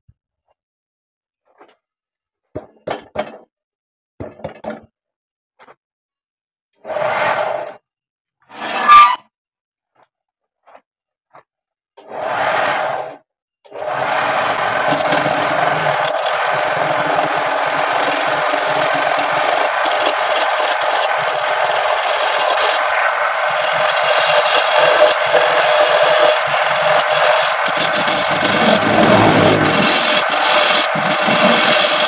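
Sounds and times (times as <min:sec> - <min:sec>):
lathe tool rasping on bamboo: 0:14.7 - 0:32.0.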